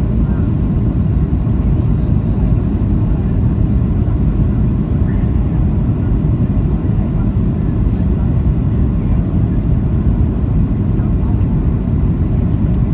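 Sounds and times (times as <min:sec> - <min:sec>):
airliner cabin rumble: 0:00.0 - 0:12.9.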